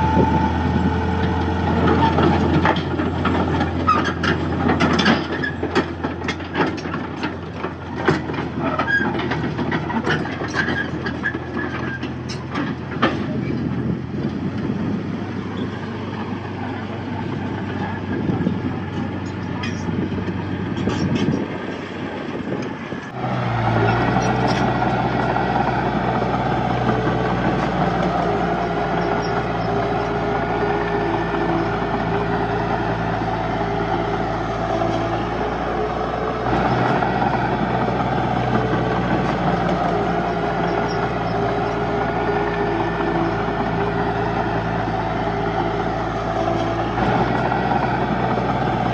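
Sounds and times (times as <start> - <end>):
heavy diesel machinery running: 0.0 - 48.9.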